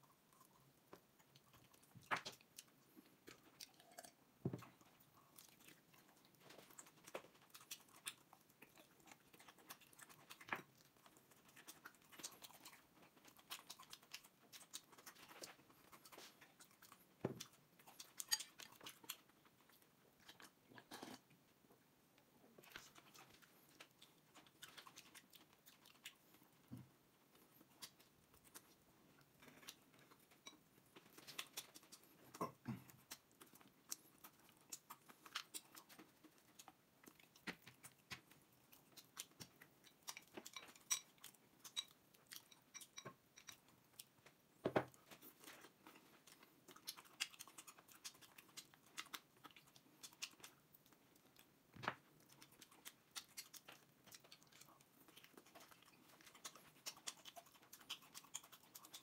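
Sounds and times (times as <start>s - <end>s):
person chewing and biting: 3.3s - 21.2s, 31.0s - 44.1s, 45.0s - 50.6s, 52.2s - 59.0s.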